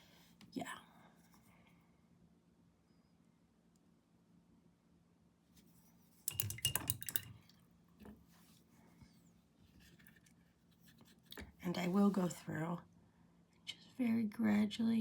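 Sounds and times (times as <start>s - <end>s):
hard object clinking against glass: 6.3s - 7.4s.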